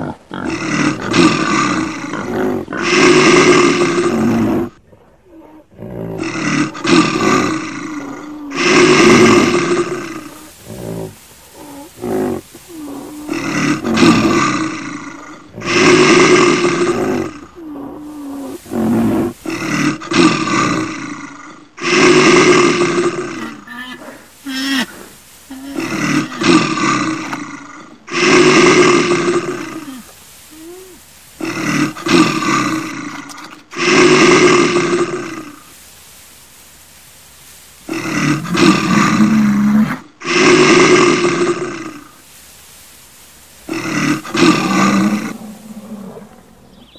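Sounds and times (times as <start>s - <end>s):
large animal roaring: 5.4s - 24.2s, 43.7s - 46.8s.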